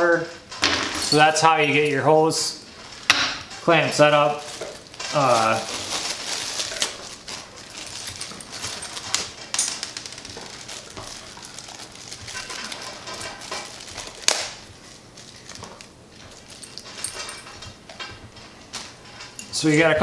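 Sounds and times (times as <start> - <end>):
packaging rustling: 0.8 - 17.8
small parts clicking and knocking: 2.8 - 18.1.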